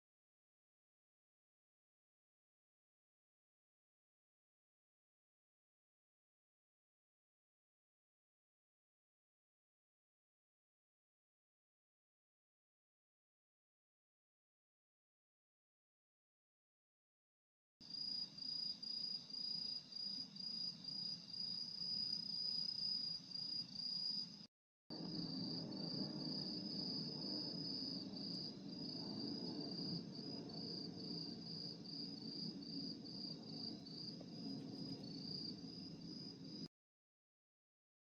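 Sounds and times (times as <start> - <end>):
crickets chirping: 17.8 - 36.7
steady low noise: 24.9 - 36.6.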